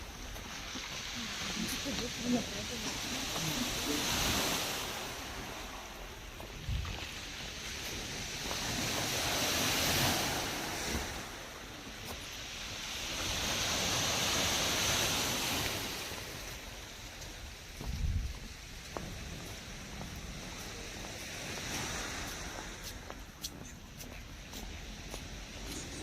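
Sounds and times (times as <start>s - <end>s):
surf washing onto shore: 0.0s - 26.0s.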